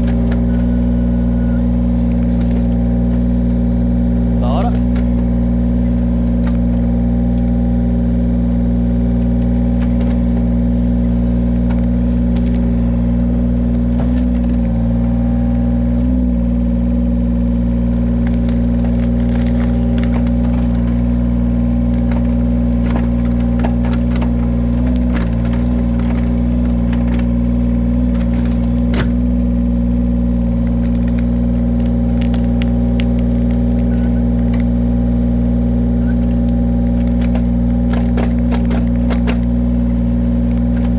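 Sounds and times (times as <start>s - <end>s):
log splitter engine running: 0.0s - 40.9s.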